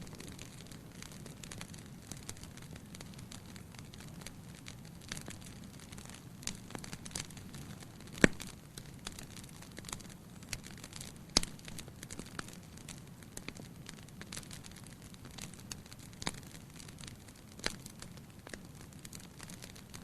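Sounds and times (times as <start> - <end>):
firewood crackling: 0.0 - 20.0
loud sharp pops: 8.2 - 8.5.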